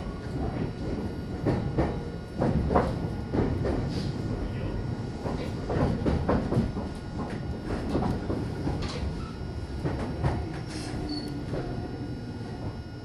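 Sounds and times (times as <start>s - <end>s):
electric train low rumble: 0.0s - 13.0s
knocks and clanks: 0.4s - 3.9s, 5.2s - 9.2s.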